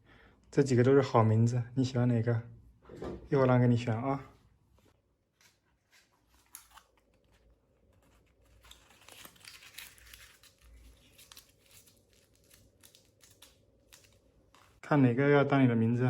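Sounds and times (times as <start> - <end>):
rustling and crinkling: 4.8 - 14.8.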